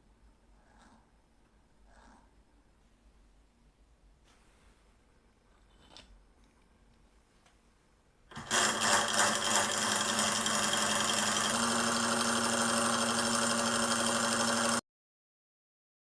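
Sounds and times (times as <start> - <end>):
model aircraft engine buzzing: 8.4 - 14.8.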